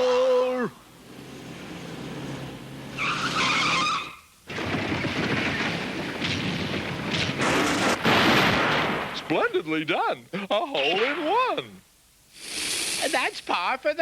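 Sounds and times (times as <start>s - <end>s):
skidding screech: 1.4s - 4.3s
crashing rumble: 4.5s - 9.5s.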